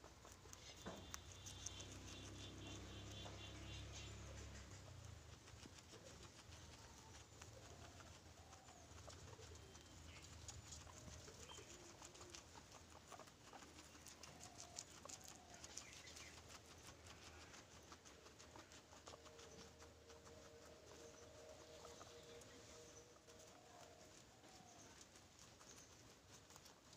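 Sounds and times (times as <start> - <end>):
light clicking and patter: 0.0 - 26.9
faint low animal chirps: 0.5 - 5.4.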